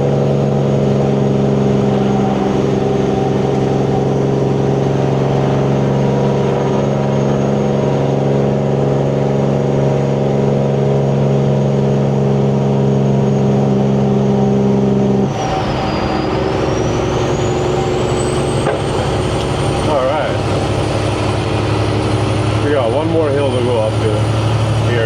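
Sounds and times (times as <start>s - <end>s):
high turbo whistle: 0.0s - 8.8s, 14.1s - 25.0s
truck diesel engine pulling: 0.0s - 25.0s.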